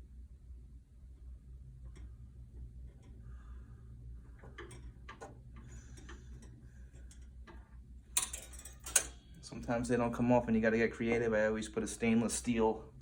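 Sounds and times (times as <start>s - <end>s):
steady low hum: 0.0s - 13.0s
hand tools clicking and tapping: 4.4s - 9.1s
metal parts clattering: 8.2s - 9.1s.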